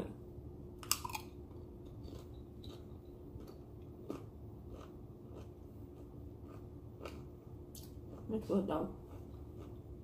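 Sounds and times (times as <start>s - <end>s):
low steady hum: 0.0s - 10.0s
chip crunching while chewing: 0.8s - 8.3s.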